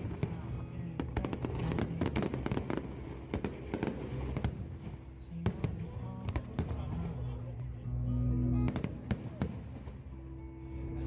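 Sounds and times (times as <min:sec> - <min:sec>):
fireworks bangs and crackles: 0:00.0 - 0:07.7, 0:08.7 - 0:10.0.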